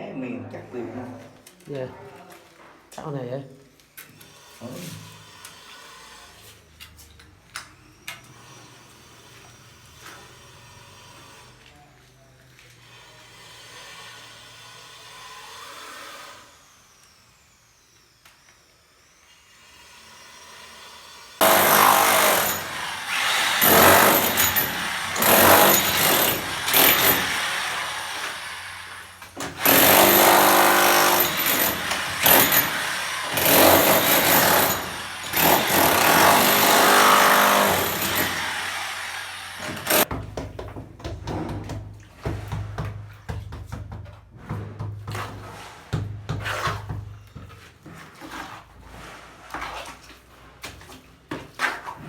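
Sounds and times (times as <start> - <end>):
handheld power tool bursts: 21.4 - 40.1.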